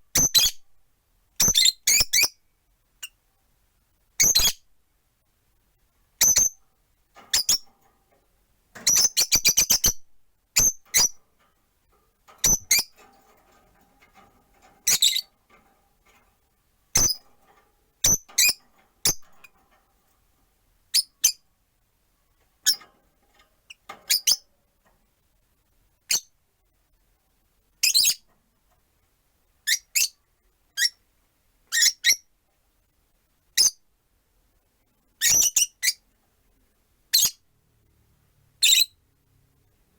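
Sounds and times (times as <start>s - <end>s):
lovebirds chirping: 8.8s - 10.0s, 14.8s - 15.4s, 18.0s - 19.2s.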